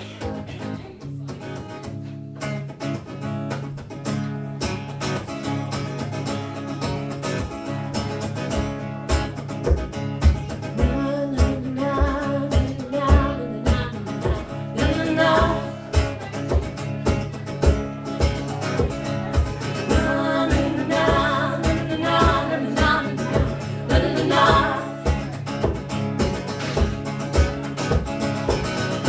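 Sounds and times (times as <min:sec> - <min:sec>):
acoustic guitar strumming: 0:00.0 - 0:29.0
person singing: 0:10.8 - 0:16.0, 0:19.8 - 0:25.1.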